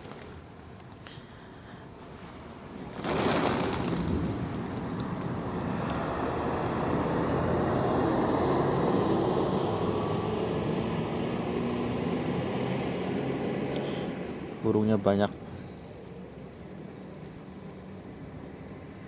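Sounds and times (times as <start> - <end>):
pigeons wingbeats taking off: 0.0 - 0.6, 2.8 - 6.3
continuous rushing noise: 1.9 - 19.0.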